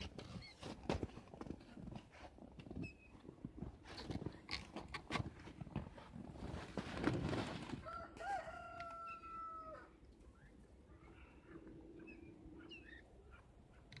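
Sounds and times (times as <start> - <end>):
rustling and handling noise: 3.4 - 8.2
rooster crowing: 7.8 - 10.0.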